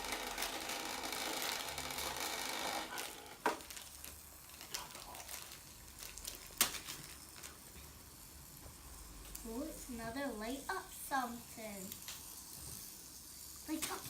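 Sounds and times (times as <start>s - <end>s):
plastic packaging crinkling: 2.9s - 7.9s.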